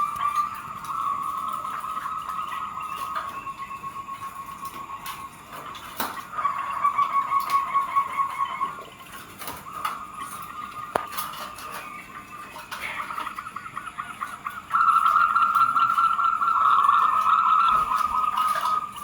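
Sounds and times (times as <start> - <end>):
doves cooing in trills: 0.0 - 19.0.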